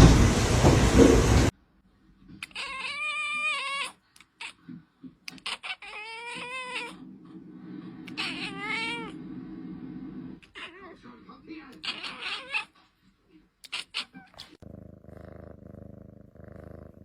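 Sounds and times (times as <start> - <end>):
cat meowing: 2.4 - 4.6, 5.3 - 7.0, 8.1 - 9.2, 11.8 - 12.7.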